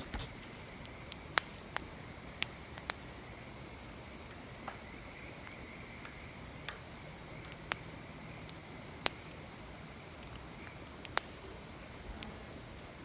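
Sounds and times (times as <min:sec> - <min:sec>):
wood fire crackling: 0:00.0 - 0:01.6
faint steady hiss: 0:00.0 - 0:13.0.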